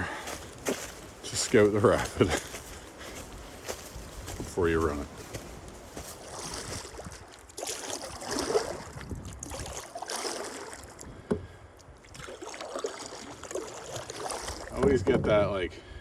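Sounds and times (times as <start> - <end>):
paddle strokes: 2.3 - 15.4
water washing against hull: 6.1 - 11.1, 12.0 - 15.0.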